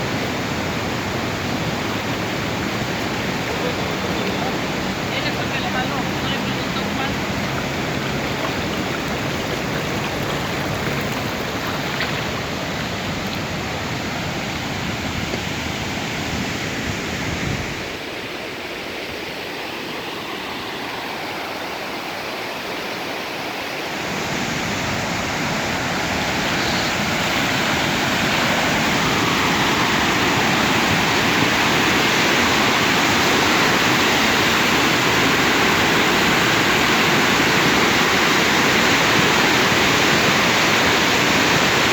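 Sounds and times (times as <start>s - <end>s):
floodwater rushing: 0.0s - 41.9s.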